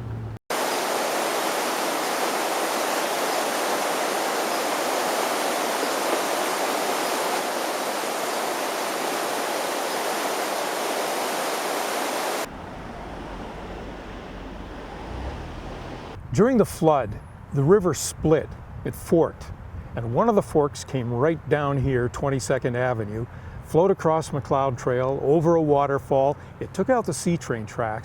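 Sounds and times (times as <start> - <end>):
river rushing: 0.5 - 16.2.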